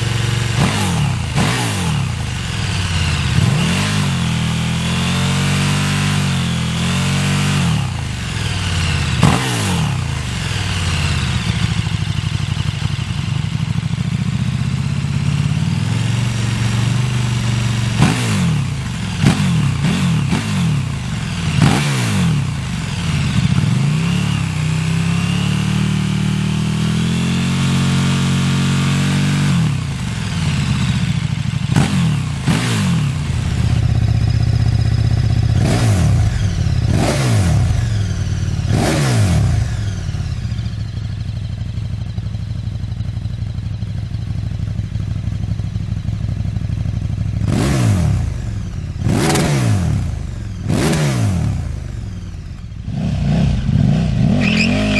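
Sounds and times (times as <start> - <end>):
motorcycle engine throttle blips: 29.6 - 54.9
exhaust cracks: 33.1 - 53.1.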